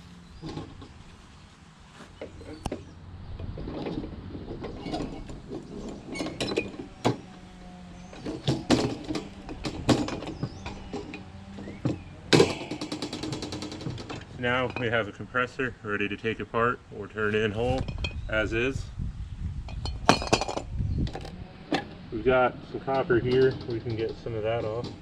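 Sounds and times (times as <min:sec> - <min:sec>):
metal rattle: 0:02.3 - 0:15.1, 0:19.6 - 0:22.1, 0:22.8 - 0:25.0.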